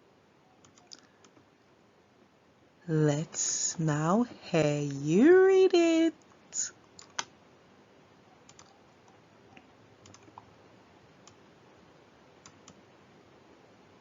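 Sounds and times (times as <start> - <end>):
faint clicks: 0.6 - 1.5, 8.4 - 10.5.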